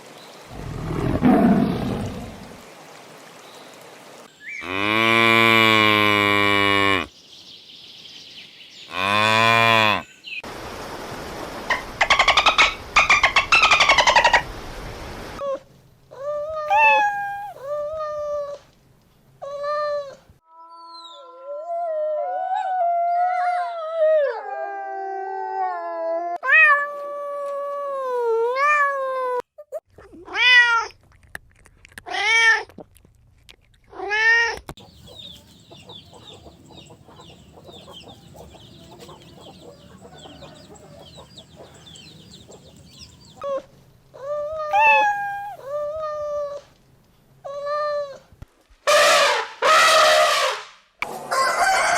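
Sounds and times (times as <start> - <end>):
cats meowing: 16.7 - 17.6, 44.6 - 45.7.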